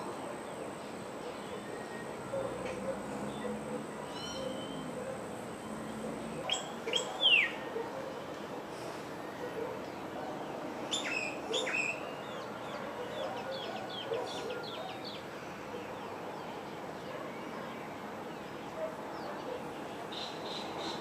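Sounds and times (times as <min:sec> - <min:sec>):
steady background noise: 0:00.0 - 0:21.0
birds chirping: 0:00.1 - 0:07.6.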